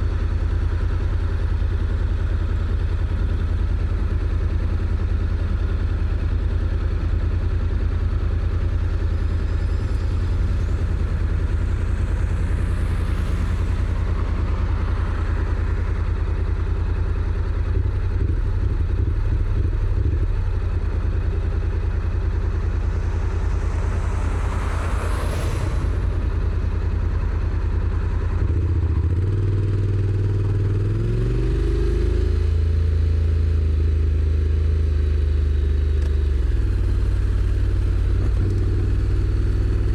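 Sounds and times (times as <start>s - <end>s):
motorcycle engine running: 0.0s - 39.9s
whooshes: 22.8s - 26.8s.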